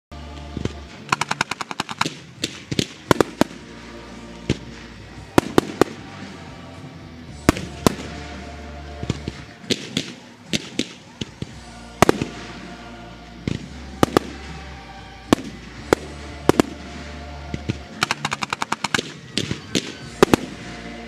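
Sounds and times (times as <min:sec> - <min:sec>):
fireworks bangs: 0:00.6 - 0:06.7, 0:07.3 - 0:21.0
fast run of firework cracks: 0:01.0 - 0:06.4, 0:07.4 - 0:21.0
steady low rumble: 0:02.2 - 0:09.6, 0:11.4 - 0:18.9.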